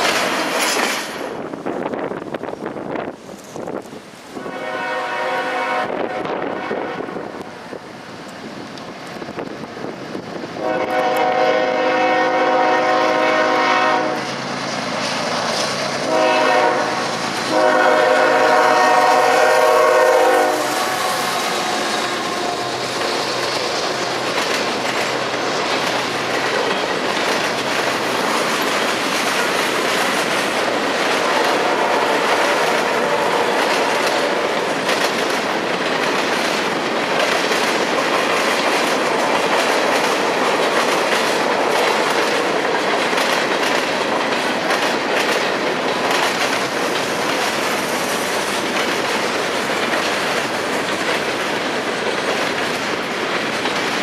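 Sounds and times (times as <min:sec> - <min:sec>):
train wheels clickety-clack: 0:00.0 - 0:54.0
locomotive horn blasts: 0:04.4 - 0:07.6, 0:10.6 - 0:14.4, 0:16.0 - 0:23.1, 0:31.3 - 0:34.5.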